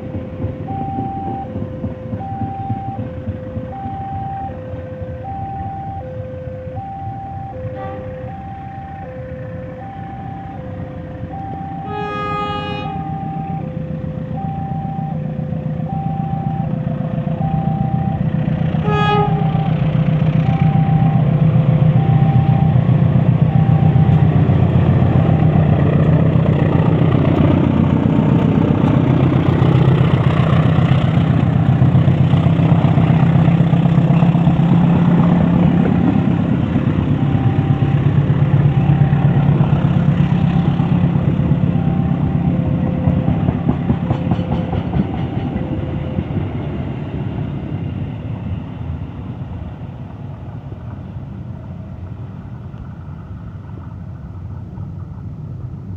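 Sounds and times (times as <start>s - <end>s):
diesel locomotive engine pulsing: 0.0s - 55.9s.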